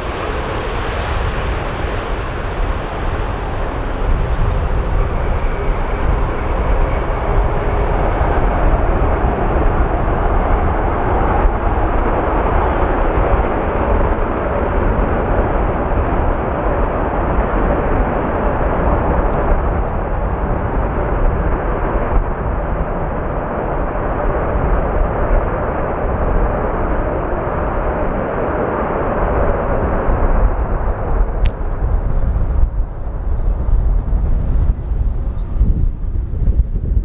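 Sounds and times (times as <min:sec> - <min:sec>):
jet engines rushing: 0:00.0 - 0:11.5, 0:26.2 - 0:32.5
wind buffeting microphone: 0:00.0 - 0:37.0.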